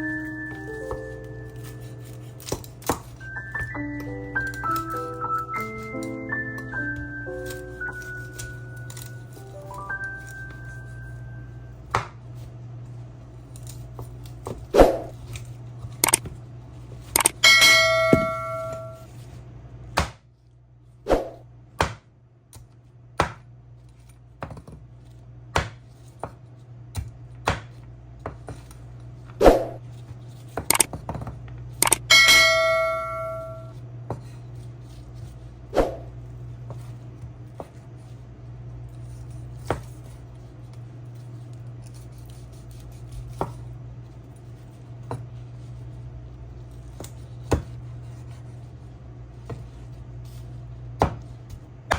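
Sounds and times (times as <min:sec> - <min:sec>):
steady low hum: 0:00.0 - 0:51.9
metal cookware clanging: 0:17.2 - 0:19.0, 0:31.9 - 0:33.7.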